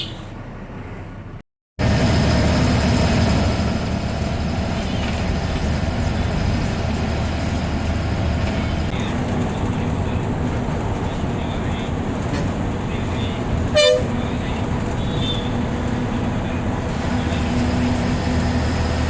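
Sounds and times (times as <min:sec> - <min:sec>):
bus diesel engine drone: 0:00.0 - 0:19.0.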